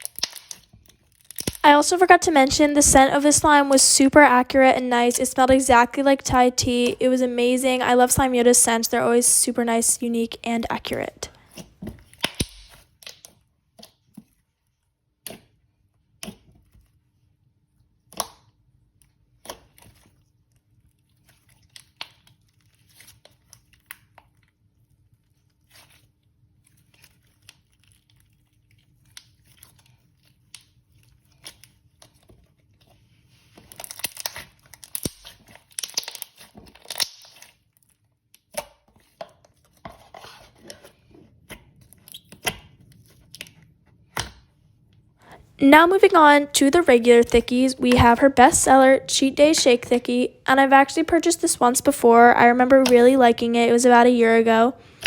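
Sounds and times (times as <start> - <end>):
slime popping and crackling: 0.0 - 4.2, 12.0 - 13.4, 33.6 - 37.8.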